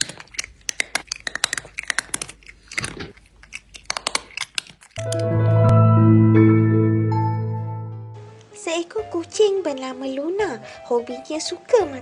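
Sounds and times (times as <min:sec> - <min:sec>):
cat crunching a snack: 0:00.0 - 0:05.2
background music with mallet percussion: 0:05.0 - 0:08.3.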